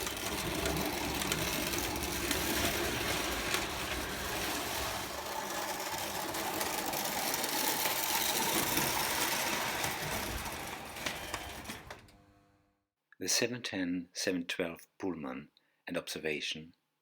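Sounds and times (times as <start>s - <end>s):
toy train clattering on track: 0.0s - 12.1s.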